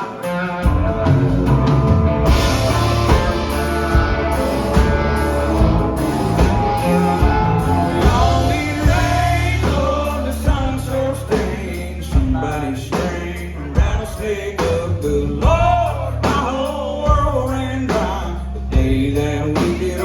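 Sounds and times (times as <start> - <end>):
live rock band playing: 0.0 - 20.0
person singing: 6.4 - 20.0.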